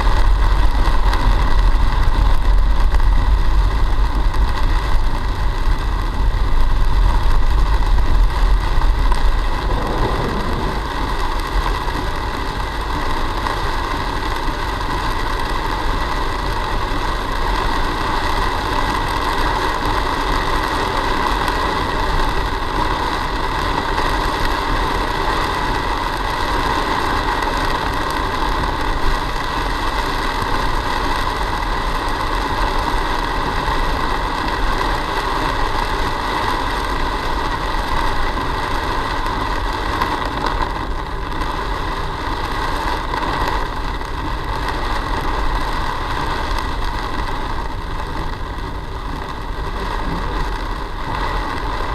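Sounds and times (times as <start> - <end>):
low rumble: 0.0 - 13.8
car engine and road noise: 0.0 - 51.9.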